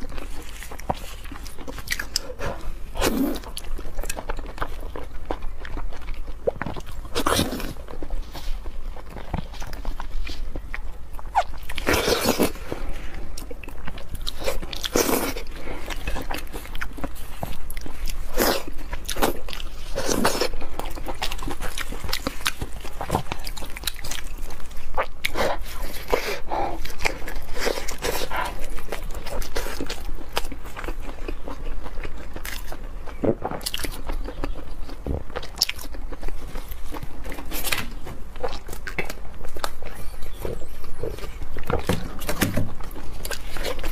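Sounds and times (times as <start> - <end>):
chewing and biting meat: 0.0 - 43.9.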